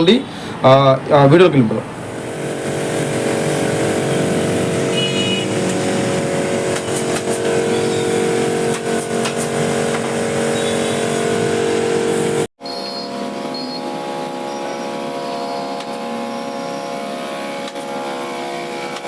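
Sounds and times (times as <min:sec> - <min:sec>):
machine drone: 0:01.9 - 0:19.0.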